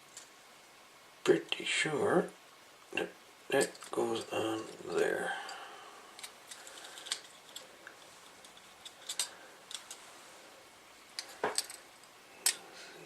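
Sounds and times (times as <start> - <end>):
plastic parts clicking: 6.2 - 10.0, 11.1 - 12.6.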